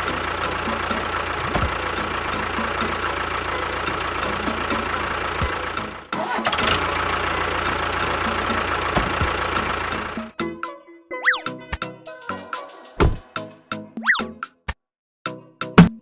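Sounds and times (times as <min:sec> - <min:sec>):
engine running: 0:00.0 - 0:10.4.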